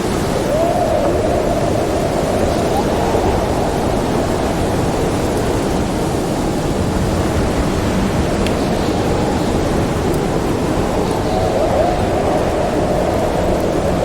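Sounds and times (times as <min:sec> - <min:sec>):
howling storm wind: 0:00.0 - 0:14.0.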